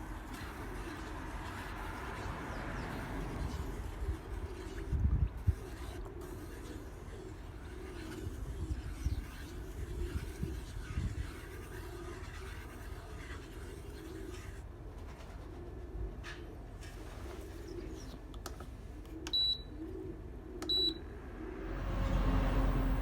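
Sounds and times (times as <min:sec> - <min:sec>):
low steady hum: 0:18.1 - 0:23.0
short high electronic beeps: 0:20.7 - 0:21.0.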